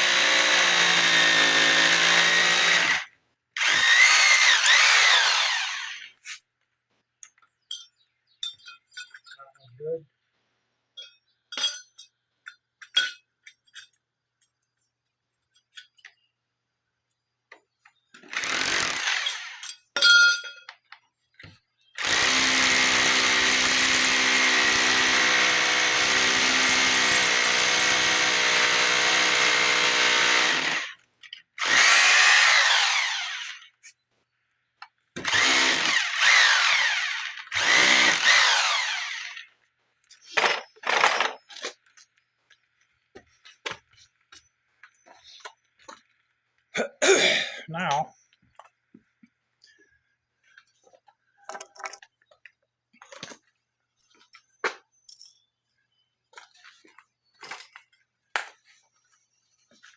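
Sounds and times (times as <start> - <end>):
hammer drill boring into concrete: 0.0 - 6.2, 18.2 - 19.8, 22.0 - 31.0, 31.6 - 33.8, 35.2 - 39.5
light metallic clinks: 7.2 - 9.8.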